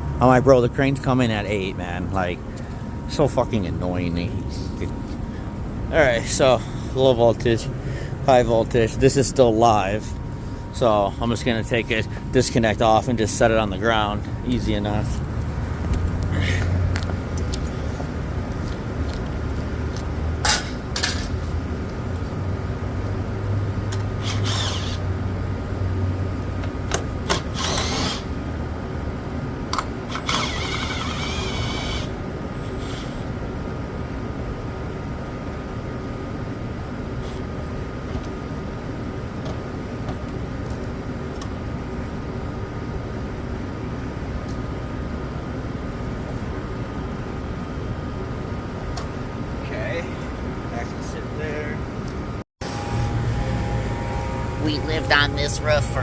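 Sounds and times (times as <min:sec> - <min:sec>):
machinery hum: 0:00.0 - 0:56.0
handheld power tool running: 0:24.2 - 0:25.0, 0:27.3 - 0:28.3, 0:30.1 - 0:32.1.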